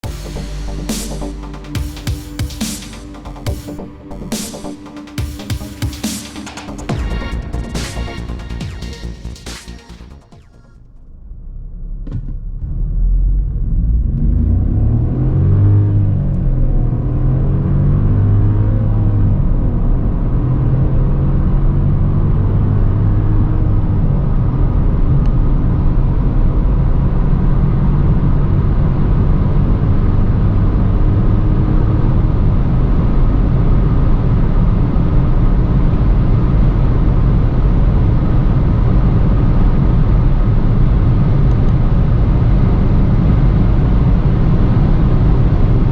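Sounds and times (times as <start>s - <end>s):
car engine accelerating with upshifts: 12.6s - 45.9s.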